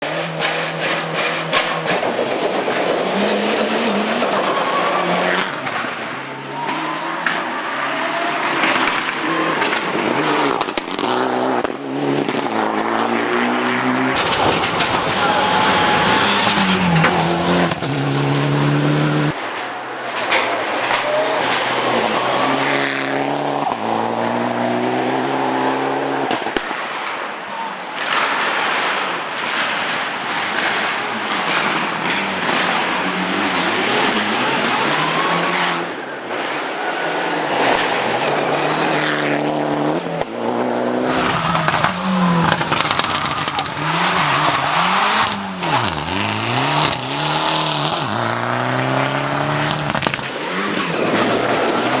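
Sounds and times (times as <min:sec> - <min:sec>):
rally car engine revving: 0:00.0 - 0:19.4, 0:20.2 - 0:26.5, 0:29.4 - 0:52.0
exhaust pops and cracks: 0:00.4 - 0:03.0, 0:14.2 - 0:17.9, 0:41.1 - 0:48.5, 0:49.6 - 0:52.0
tyre squeal: 0:03.1 - 0:05.7, 0:14.2 - 0:19.3.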